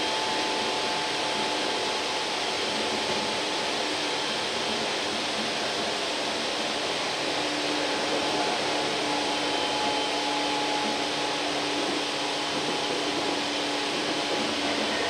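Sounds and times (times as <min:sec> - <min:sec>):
train wheels rushing on rail: 0:00.0 - 0:15.0.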